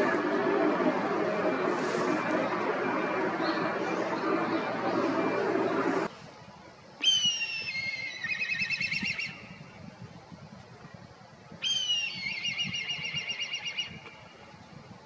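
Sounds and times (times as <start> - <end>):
kite whistling trill call: 7.0 - 9.6, 11.6 - 14.1.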